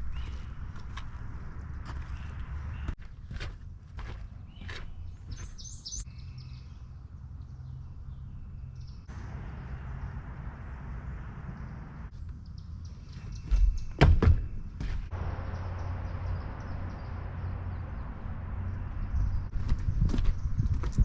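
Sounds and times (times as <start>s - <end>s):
high bird chirps: 4.5s - 6.8s.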